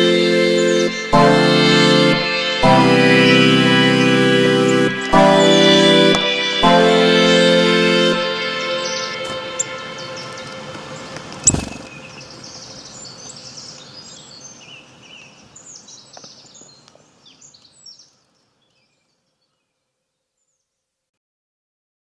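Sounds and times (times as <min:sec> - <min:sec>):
birds chirping: 0:00.0 - 0:20.6
sharp thump: 0:11.4 - 0:11.9.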